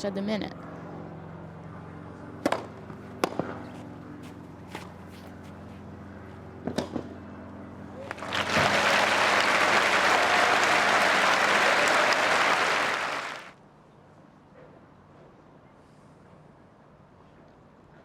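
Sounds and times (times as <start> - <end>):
tennis ball strike: 2.4 - 3.6
crowd applauding: 8.0 - 13.6.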